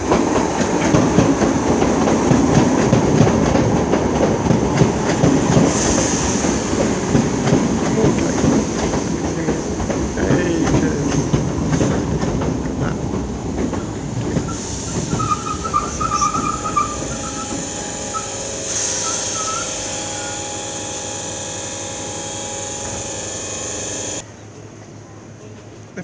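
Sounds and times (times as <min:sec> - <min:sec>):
train wheels rumbling: 0:00.0 - 0:24.2
train equipment hum and hiss: 0:00.0 - 0:26.0
high brake squeal: 0:14.5 - 0:24.2.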